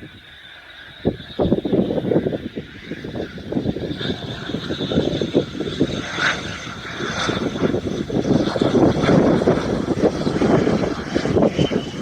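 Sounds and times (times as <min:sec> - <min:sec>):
wind buffeting microphone: 0:00.0 - 0:12.0
jet engines whining: 0:00.9 - 0:12.0.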